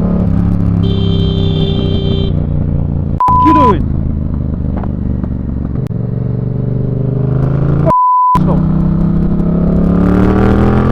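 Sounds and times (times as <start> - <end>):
motorcycle engine revving: 0.0 - 10.9
censor bleep: 3.2 - 3.7, 7.8 - 8.4.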